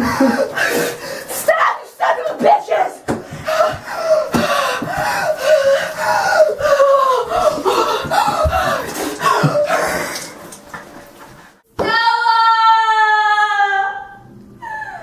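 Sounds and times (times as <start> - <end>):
shower water running: 3.6 - 11.6.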